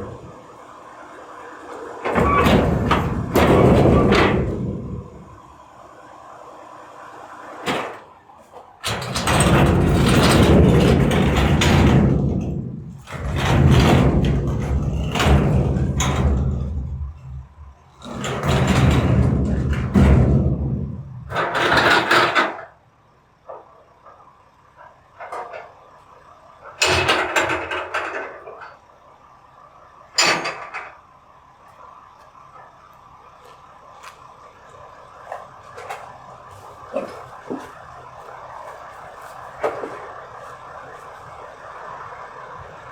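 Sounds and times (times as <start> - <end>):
garbage truck engine revving: 0.0 - 6.4
garbage truck engine hum: 0.0 - 42.9
dense clattering: 2.0 - 5.5, 8.8 - 22.7.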